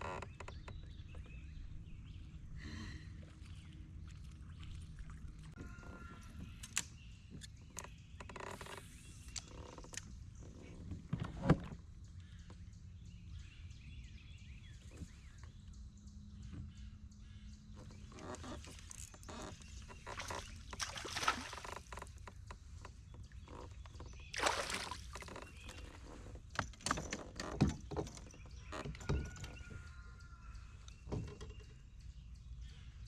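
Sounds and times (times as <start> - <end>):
knocks and clatter on kayak: 0.0 - 1.6, 9.4 - 12.6, 17.7 - 30.0, 31.0 - 31.8
water splashes: 3.2 - 5.6, 18.4 - 22.2, 24.3 - 25.8.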